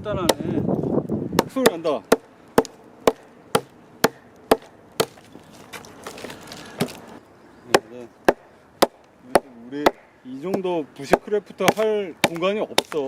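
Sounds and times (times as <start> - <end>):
axe chopping log: 0.2 - 0.5, 1.4 - 5.2, 6.8 - 7.0, 7.7 - 13.0.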